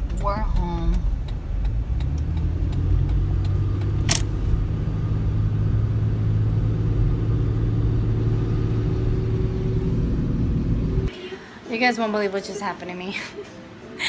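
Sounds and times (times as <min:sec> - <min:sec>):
car engine running: 0:00.0 - 0:11.1
sharp click: 0:03.4 - 0:04.4.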